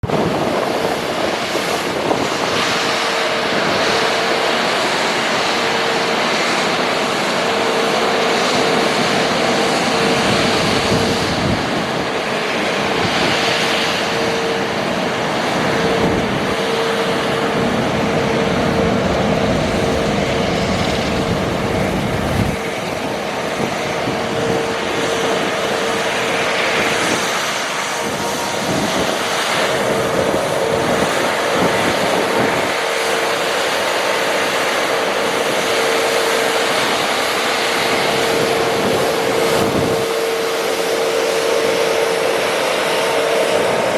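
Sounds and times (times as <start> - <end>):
street sweeper rushing noise: 14.2 - 22.7
mid-pitched hum: 15.6 - 22.6.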